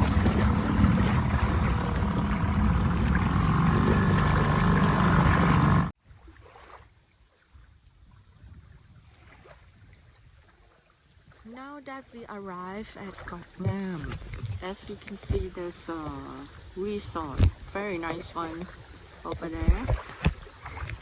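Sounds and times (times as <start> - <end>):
boat motor droning: 0.0 - 5.9
water lapping and splashing: 0.0 - 21.0.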